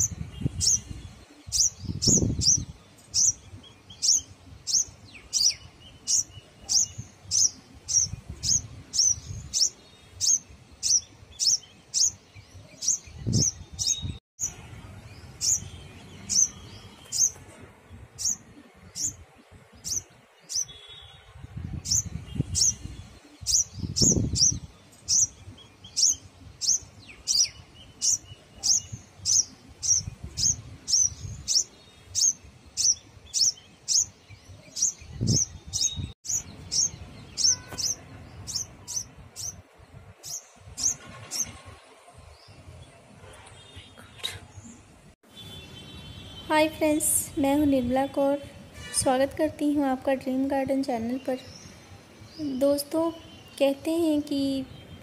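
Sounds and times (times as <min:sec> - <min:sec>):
bird chirping: 0:00.0 - 0:41.8.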